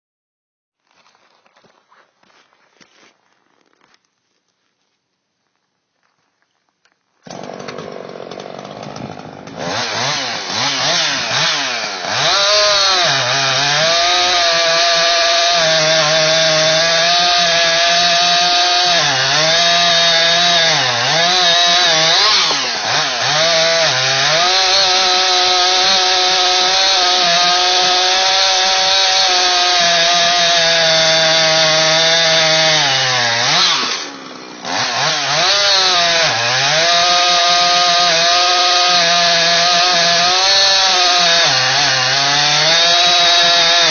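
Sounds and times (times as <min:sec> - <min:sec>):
chainsaw cutting wood: 0:07.2 - 0:43.9.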